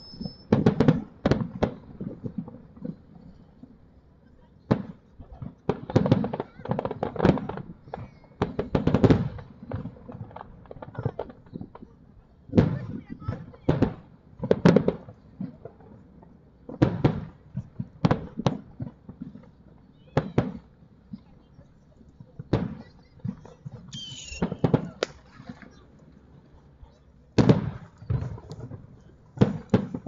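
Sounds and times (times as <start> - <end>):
firework shells bursting: 22.5 - 26.8.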